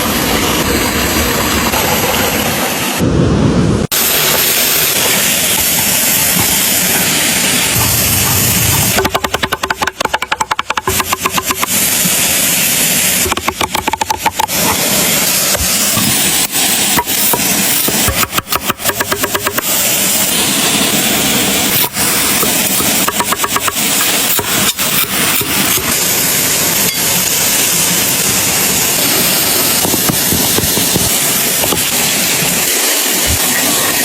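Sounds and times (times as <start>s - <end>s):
rapid clicking: 7.8s - 11.8s.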